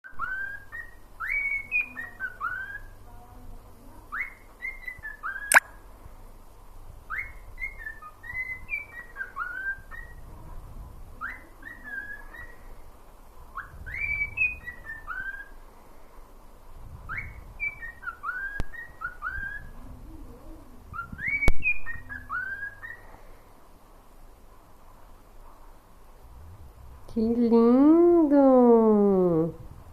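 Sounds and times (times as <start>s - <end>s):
cockatiel whistling a tune: 0.1s - 2.9s, 4.1s - 5.6s, 7.1s - 10.2s, 11.2s - 12.6s, 13.6s - 15.6s, 17.1s - 19.8s, 20.9s - 23.1s.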